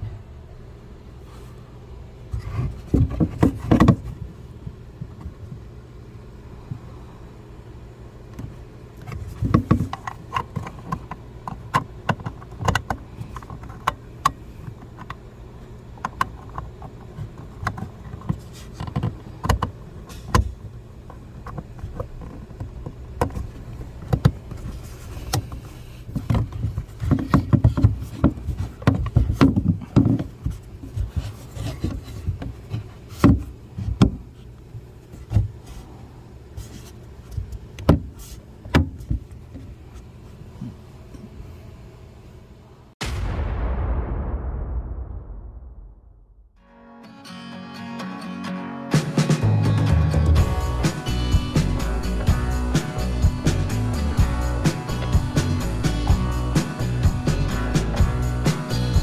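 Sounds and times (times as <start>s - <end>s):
steady low hum: 0.0s - 46.6s, 49.4s - 59.0s
clicks taps and rubbing: 8.3s - 41.4s.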